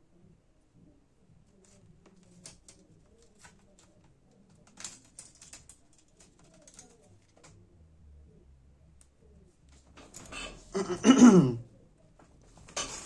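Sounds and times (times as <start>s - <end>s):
clicks and taps on keyboard: 1.6s - 7.6s.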